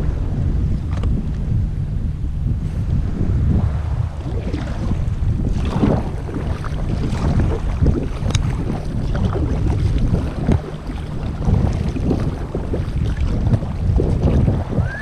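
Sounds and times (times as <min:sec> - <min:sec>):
water lapping around kayak: 0:00.0 - 0:15.0
wind rumbling on microphone: 0:00.0 - 0:15.0
short splashes: 0:03.8 - 0:15.0.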